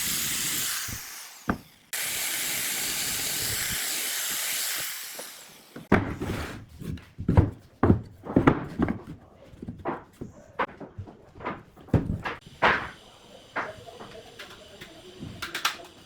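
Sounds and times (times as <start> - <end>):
irregular knocks and clatters: 6.8 - 13.0
steady hiss: 12.4 - 16.0.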